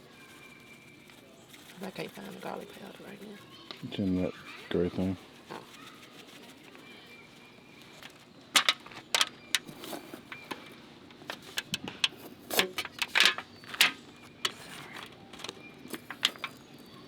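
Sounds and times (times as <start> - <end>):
small hard objects clattering: 7.8 - 17.0.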